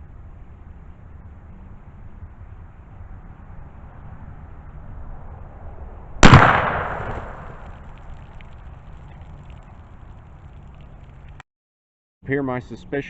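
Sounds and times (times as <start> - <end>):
gunshot: 6.2 - 7.8.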